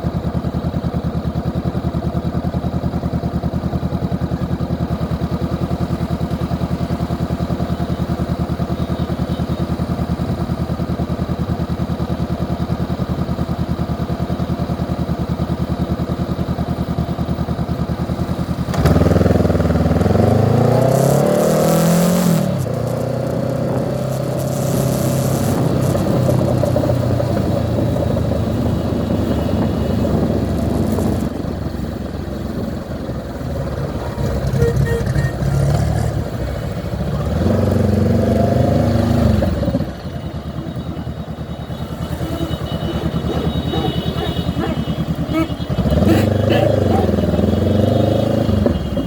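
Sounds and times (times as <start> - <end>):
motorcycle engine idling: 0.0 - 49.0
motorcycle accelerating through gears: 14.7 - 49.0.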